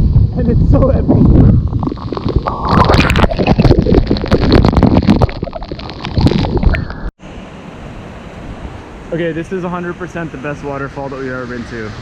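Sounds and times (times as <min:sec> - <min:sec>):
wind buffeting microphone: 0:00.0 - 0:07.0
crackles and knocks on microphone: 0:00.7 - 0:07.1.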